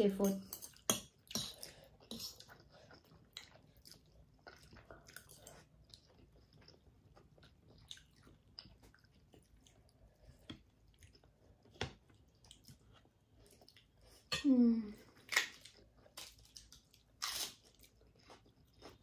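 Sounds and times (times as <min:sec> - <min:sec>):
chewing and slurping noodles: 0:00.7 - 0:14.3.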